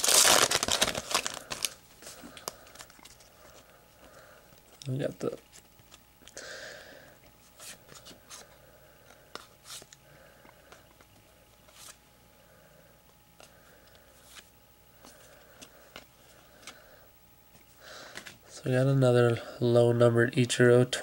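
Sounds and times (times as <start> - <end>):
cards rustling and clicking: 0.0 - 3.6, 7.2 - 12.0, 13.4 - 16.9, 17.5 - 18.4.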